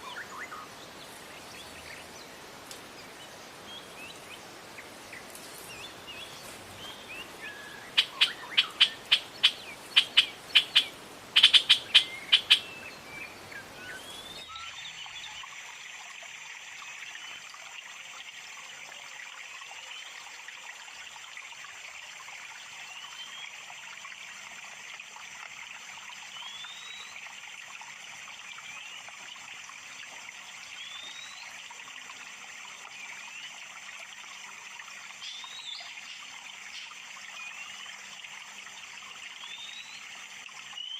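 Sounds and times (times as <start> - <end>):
small birds chirping: 0.0 - 15.5
water trickling: 0.0 - 40.9.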